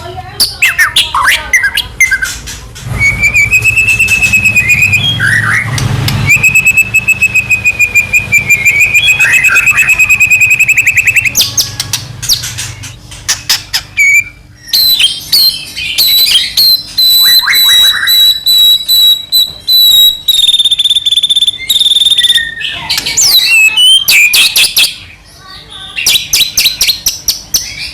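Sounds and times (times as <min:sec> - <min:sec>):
songbird singing whistles and trills: 0:03.0 - 0:12.4, 0:13.5 - 0:25.2, 0:26.0 - 0:27.9.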